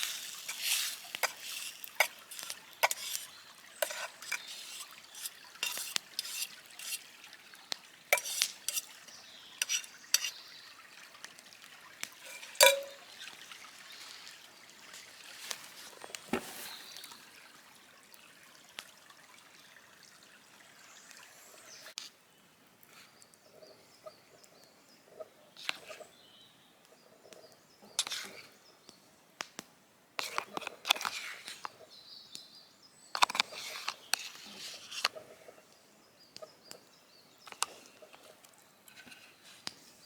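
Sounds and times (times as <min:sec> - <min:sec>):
stirring and scraping in a pan: 0:00.0 - 0:14.3, 0:27.2 - 0:28.6, 0:30.2 - 0:31.8, 0:33.2 - 0:35.6, 0:37.4 - 0:40.0
low sizzle: 0:00.0 - 0:26.0.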